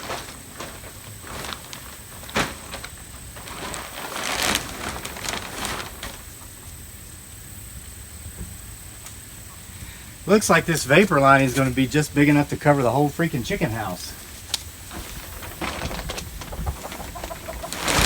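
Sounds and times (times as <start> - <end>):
plastic sheeting snap: 0.0 - 6.3, 14.4 - 18.0
plastic sheeting crinkling: 0.0 - 6.5, 10.3 - 18.0.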